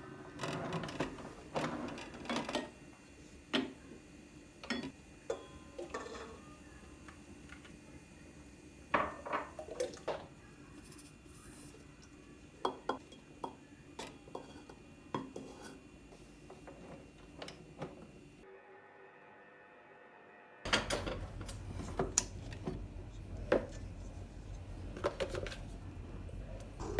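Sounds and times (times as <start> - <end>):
dishes and utensils clinking: 4.6 - 6.4, 12.6 - 15.9.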